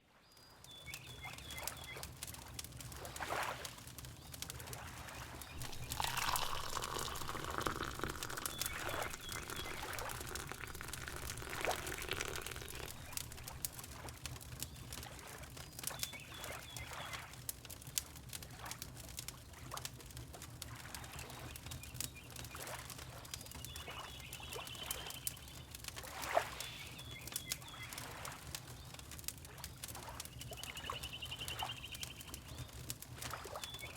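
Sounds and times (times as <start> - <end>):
water lapping: 5.6 - 13.8.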